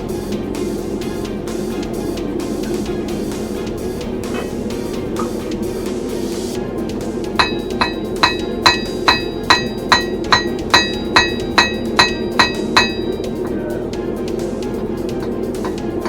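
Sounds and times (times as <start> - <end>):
steady low roar: 0.0 - 16.0
hammer striking steel on anvil: 7.4 - 13.7.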